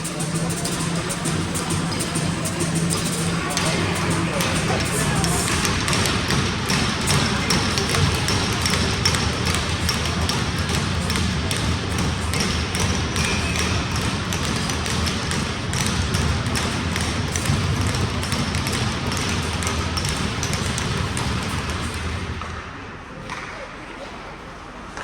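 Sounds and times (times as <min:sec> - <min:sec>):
sticks and puck clattering: 0:00.0 - 0:22.6.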